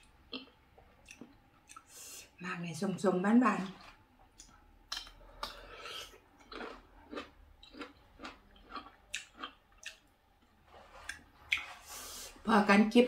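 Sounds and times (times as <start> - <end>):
person biting and chewing fruit: 4.4 - 10.1.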